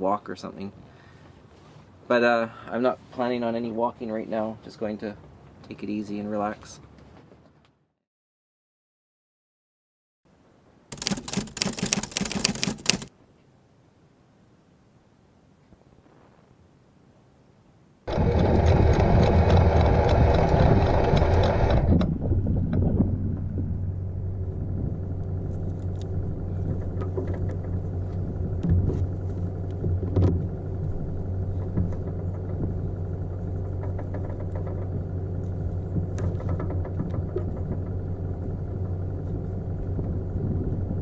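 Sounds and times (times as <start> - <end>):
boat diesel engine starting and idling: 18.1 - 41.0.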